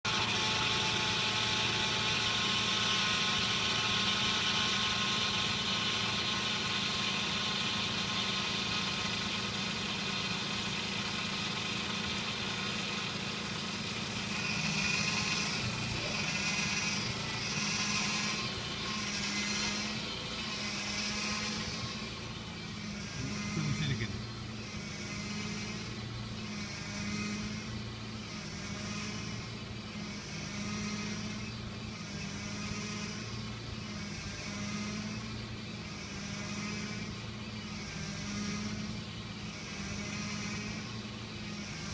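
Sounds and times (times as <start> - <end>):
power steering pump whining: 0.0 - 30.3
car engine hum: 0.0 - 41.9
higher pulsing whine: 0.1 - 41.9.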